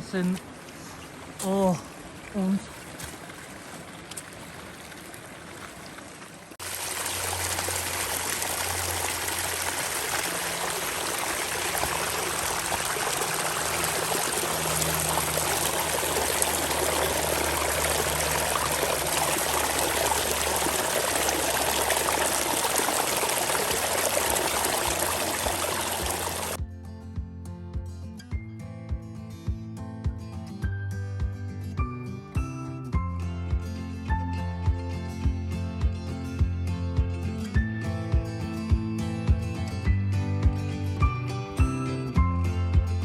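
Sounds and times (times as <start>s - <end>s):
stream water rushing: 0.0s - 26.6s.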